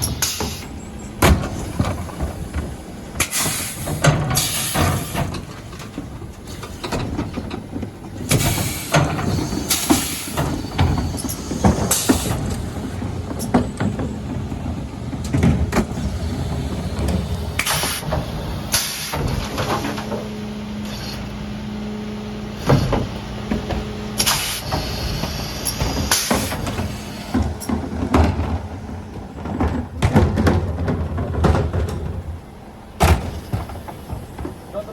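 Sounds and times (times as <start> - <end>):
truck engine humming: 0.0 - 34.9
bin lifter knocks and bangs: 29.4 - 32.2.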